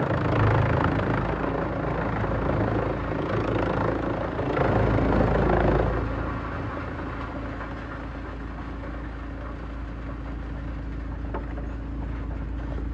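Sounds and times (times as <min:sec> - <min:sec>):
low machine hum: 0:00.0 - 0:12.9
wood shredder grinding: 0:04.0 - 0:12.9.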